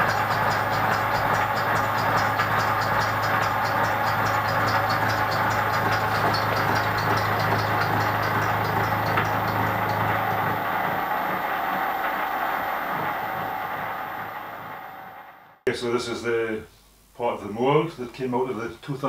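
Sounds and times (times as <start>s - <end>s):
light regular ticking: 0.0s - 12.0s
milling machine cutting steel: 0.0s - 15.3s.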